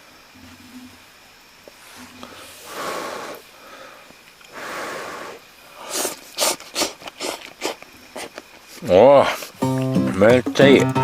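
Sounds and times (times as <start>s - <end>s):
mouth sounds eating: 5.1s - 9.5s
person blowing on food: 5.8s - 8.3s.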